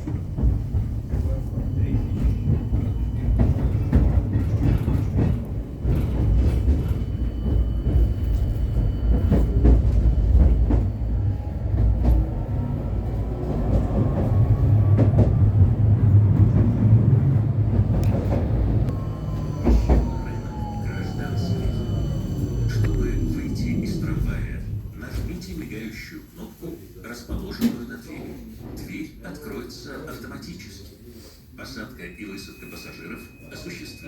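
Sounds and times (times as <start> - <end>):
tram drive whine: 0.0 - 26.2
tram rumbling on rails: 0.0 - 30.9.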